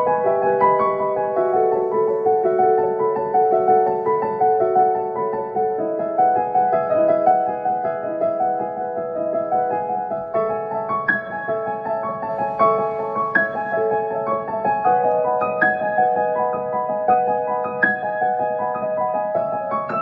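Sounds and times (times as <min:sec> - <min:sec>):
gentle solo piano: 0:00.0 - 0:20.0.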